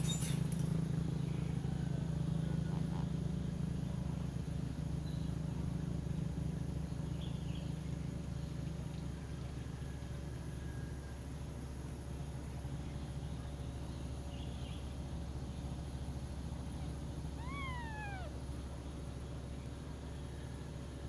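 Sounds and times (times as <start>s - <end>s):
cat purring: 16.7s - 18.4s
kittens squeaking: 16.8s - 18.4s.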